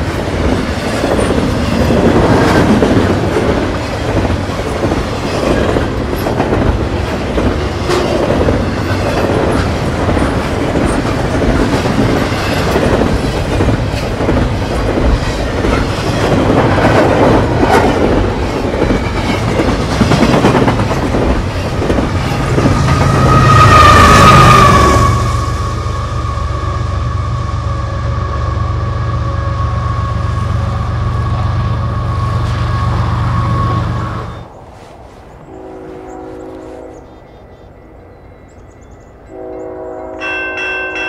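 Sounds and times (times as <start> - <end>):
freight train wheels clacking: 0.0 - 25.9
diesel locomotive engine drone: 0.0 - 41.0.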